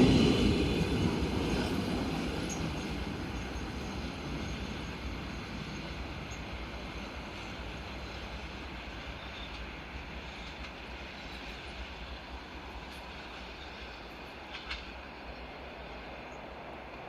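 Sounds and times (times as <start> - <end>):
train rumbling: 0.0 - 17.0
clatter of clicks: 14.5 - 15.0.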